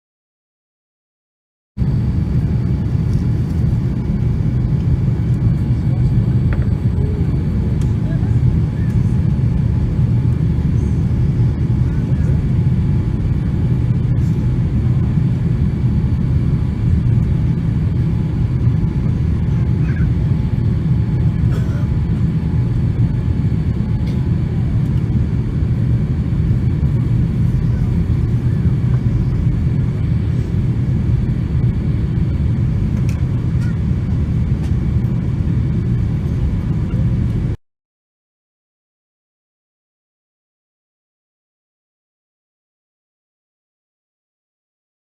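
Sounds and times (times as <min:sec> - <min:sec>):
airplane engines rumbling: 0:01.8 - 0:37.6.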